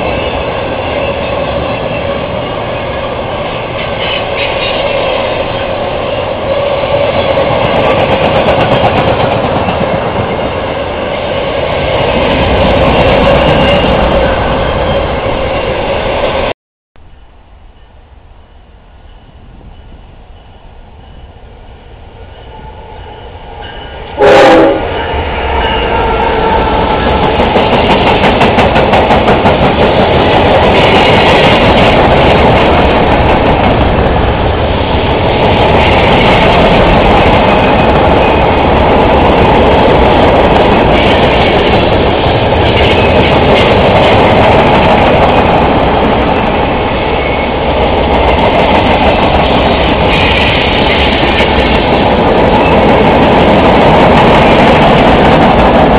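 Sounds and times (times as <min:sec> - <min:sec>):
train horn: 0:00.0 - 0:07.4, 0:22.1 - 0:27.2
freight train rumbling past: 0:00.0 - 0:55.9.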